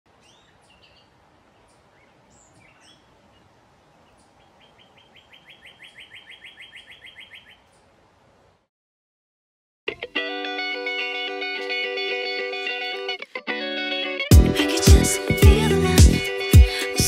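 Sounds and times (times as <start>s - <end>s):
faint steady hiss: 0.1s - 5.5s, 7.6s - 8.7s
songbirds chirping: 0.1s - 8.6s
bird trilling: 4.6s - 7.7s.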